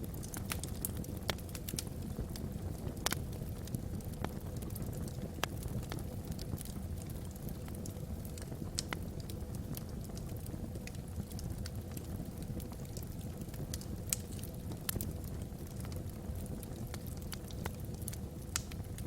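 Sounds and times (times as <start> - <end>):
low rumble of fire: 0.0 - 19.0
wood fire crackling and popping: 0.0 - 19.0
loud fire snap: 3.0 - 3.2, 16.7 - 18.8.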